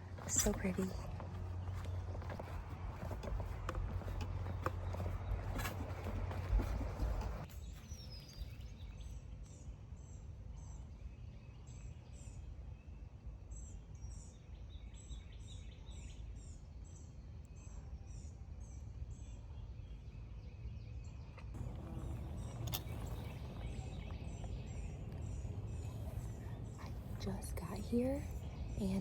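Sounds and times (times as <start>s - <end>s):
low outdoor rumble: 0.0s - 7.5s, 21.5s - 29.0s
small bird chirping: 21.2s - 29.0s.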